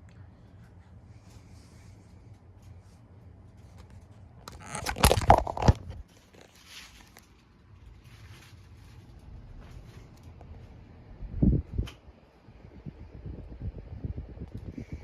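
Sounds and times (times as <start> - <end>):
ceiling fan humming: 0.0 - 15.0
faint rustles: 0.2 - 10.9
loud crunching crackling: 4.5 - 7.2.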